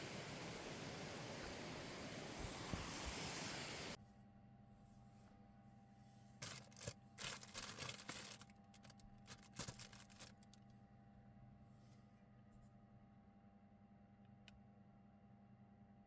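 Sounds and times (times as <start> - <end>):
faint steady hum: 0.0 - 16.0
small clicks and rustles: 6.4 - 10.8.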